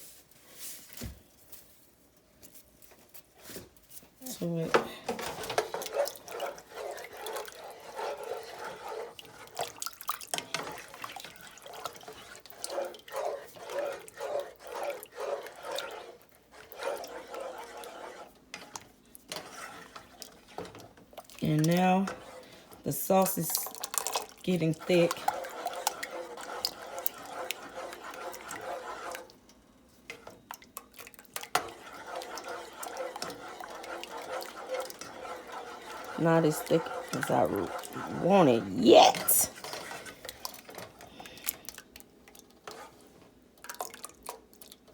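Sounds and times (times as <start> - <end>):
sauce sloshing in a pot: 2.8 - 44.9.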